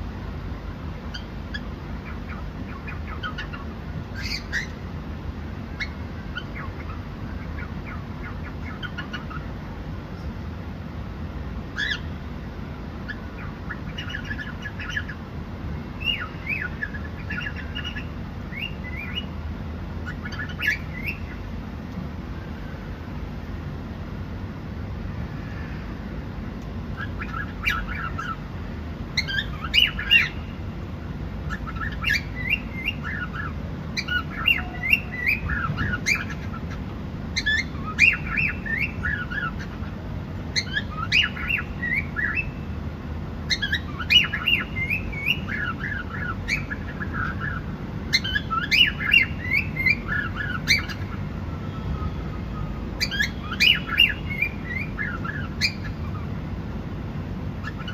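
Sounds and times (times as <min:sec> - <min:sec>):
low background hum: 0:00.0 - 0:57.9
cockatiel chirping: 0:01.1 - 0:04.8, 0:05.8 - 0:09.5, 0:11.8 - 0:12.1, 0:13.1 - 0:15.2, 0:16.0 - 0:19.3, 0:20.0 - 0:21.4, 0:27.0 - 0:28.4, 0:29.2 - 0:30.5, 0:31.5 - 0:36.8, 0:37.4 - 0:39.8, 0:40.6 - 0:42.6, 0:43.5 - 0:51.2, 0:52.6 - 0:56.3, 0:57.6 - 0:57.9.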